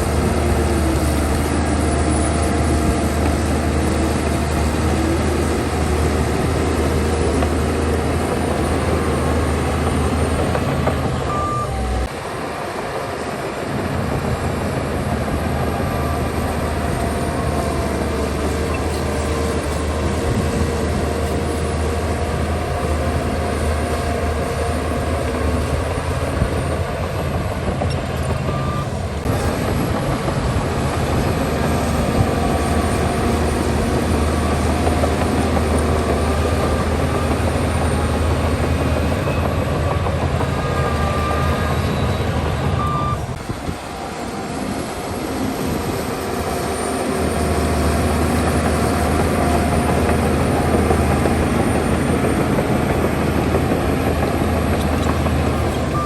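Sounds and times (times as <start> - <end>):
heavy machine diesel engine running: 0.0 - 56.0.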